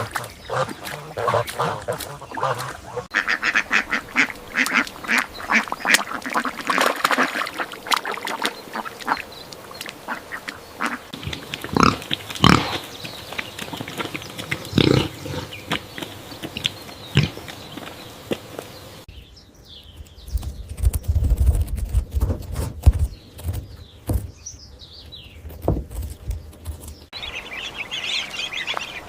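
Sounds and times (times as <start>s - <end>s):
ducks calling: 0.0s - 19.1s, 27.2s - 29.0s.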